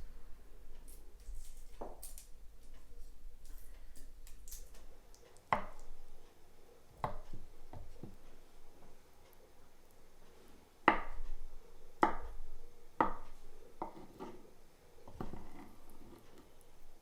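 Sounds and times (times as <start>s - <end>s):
knife chopping on wooden board: 10.9s - 11.2s, 12.0s - 12.3s, 13.0s - 14.4s.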